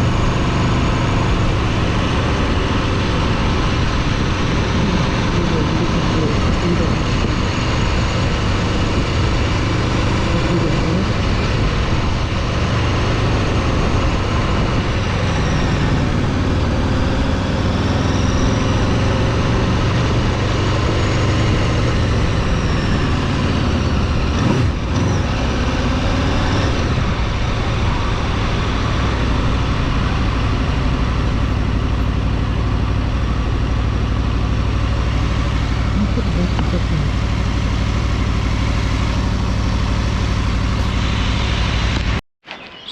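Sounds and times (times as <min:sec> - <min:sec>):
vehicle engine running: 0:00.0 - 0:42.2
road and wind noise: 0:00.0 - 0:42.9.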